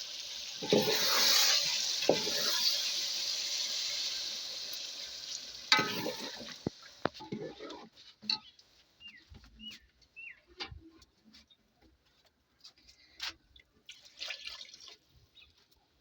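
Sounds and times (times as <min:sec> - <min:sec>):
food sizzling in a frying pan: 0:00.0 - 0:07.6
utensil clinking on pan: 0:05.7 - 0:06.5.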